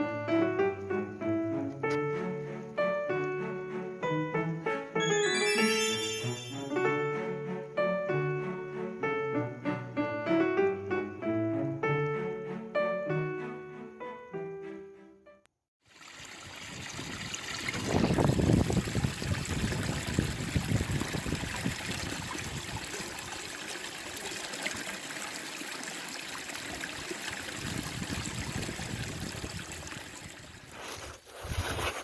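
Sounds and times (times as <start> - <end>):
stream water trickling and gurgling: 15.8 - 31.6.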